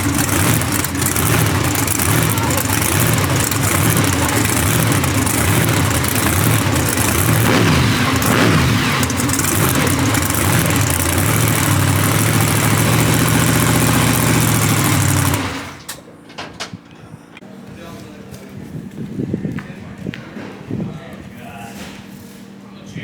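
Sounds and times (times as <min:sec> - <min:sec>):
large vehicle engine running: 0:00.0 - 0:16.9.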